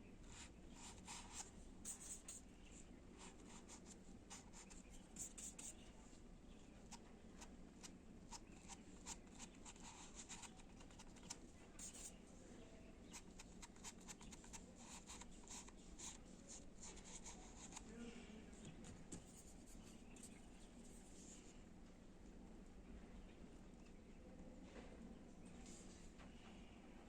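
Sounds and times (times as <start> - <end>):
paintbrush scratching strokes: 0.3 - 5.8, 8.3 - 12.2.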